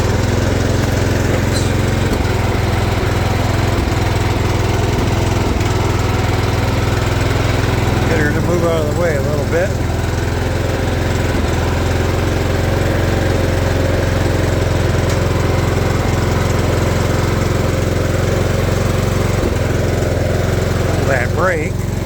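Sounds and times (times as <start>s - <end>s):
riding mower engine running: 0.0s - 22.0s.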